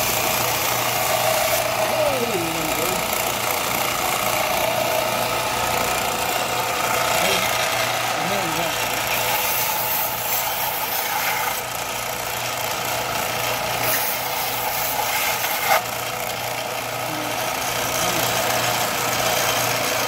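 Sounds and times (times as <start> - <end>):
belt grinder humming: 0.0 - 20.0.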